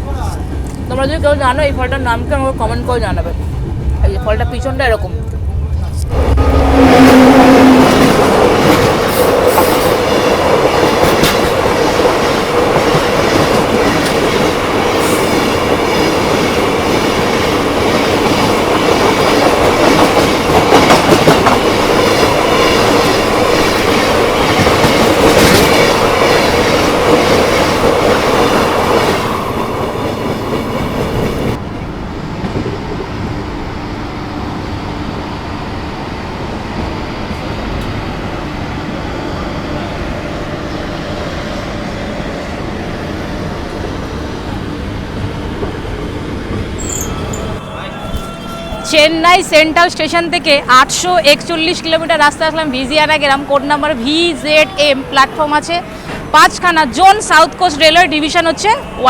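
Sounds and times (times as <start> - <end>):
train wheels clattering on rails: 6.0 - 31.6.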